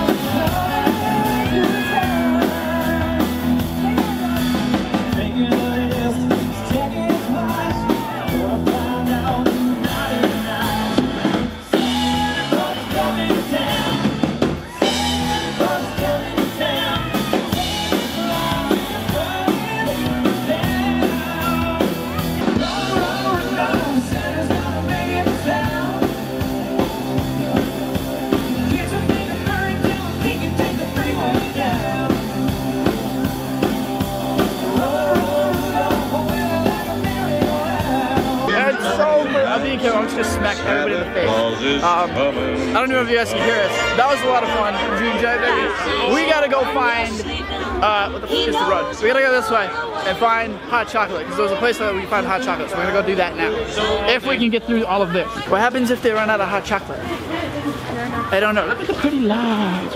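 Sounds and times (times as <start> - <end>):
drum kit: 0.0 - 38.6
person singing: 0.0 - 39.6
live country-rock band: 0.0 - 59.9.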